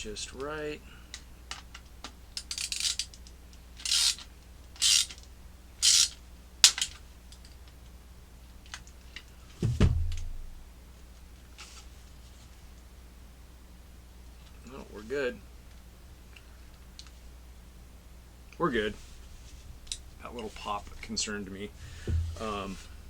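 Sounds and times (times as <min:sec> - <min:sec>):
wrench rasping: 0:03.8 - 0:04.2, 0:04.8 - 0:05.2, 0:05.8 - 0:06.2
low pop: 0:09.6 - 0:10.7, 0:21.9 - 0:23.0.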